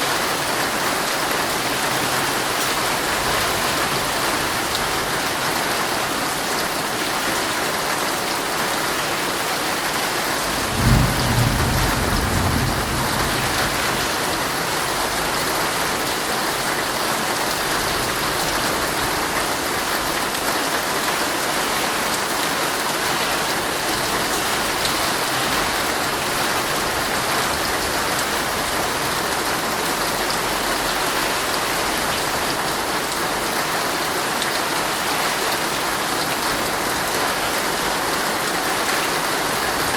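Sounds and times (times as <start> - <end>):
heavy rain drumming on a tent: 0.0 - 39.9
thunder clap rumbling: 10.5 - 15.2.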